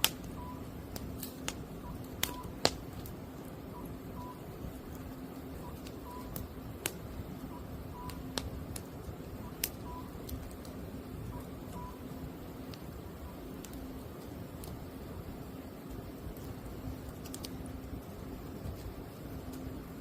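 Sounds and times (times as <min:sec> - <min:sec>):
fire popping: 0:00.0 - 0:20.0
wood fire crackling: 0:00.0 - 0:20.0
cuckoo calling: 0:00.2 - 0:00.7, 0:01.8 - 0:02.6, 0:03.7 - 0:04.4, 0:05.5 - 0:06.5, 0:07.4 - 0:08.4, 0:09.4 - 0:10.3, 0:11.2 - 0:12.1.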